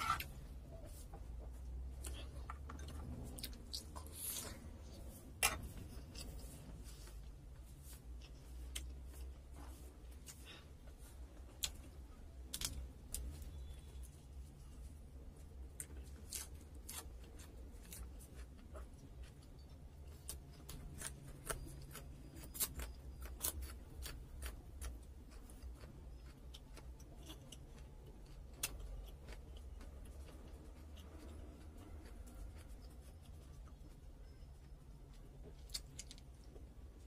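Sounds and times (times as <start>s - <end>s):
lettuce crunching being chewed: 15.7s - 34.0s.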